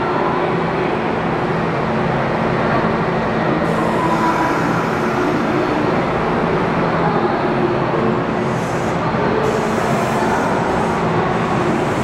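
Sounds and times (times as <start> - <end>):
electric train running past: 3.4 - 12.0.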